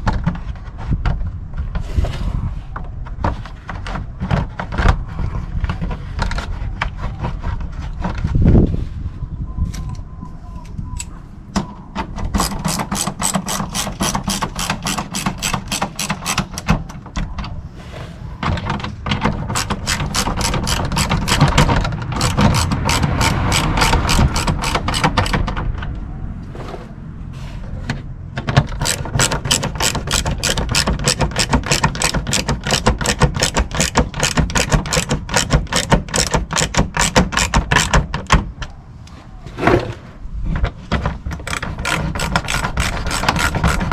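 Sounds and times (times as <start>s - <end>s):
socket ratchet clicking: 12.4s - 16.7s, 19.6s - 25.4s, 28.7s - 38.0s, 41.4s - 43.9s.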